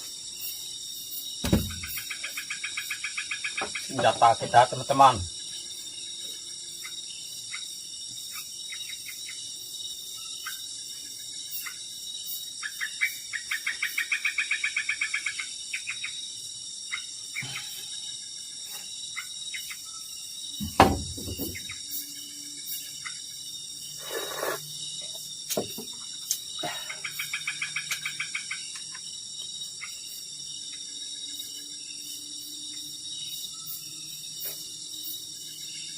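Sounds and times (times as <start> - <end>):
high insect drone: 0.0 - 35.9
sharp knock: 1.4 - 2.0, 20.6 - 21.6.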